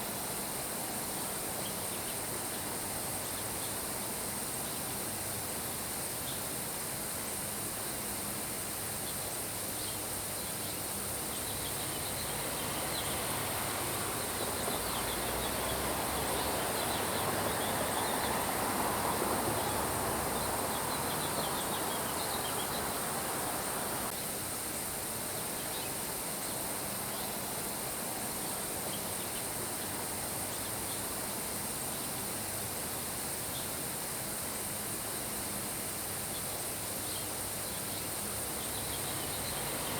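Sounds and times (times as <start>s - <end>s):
rain hissing: 12.3s - 24.1s.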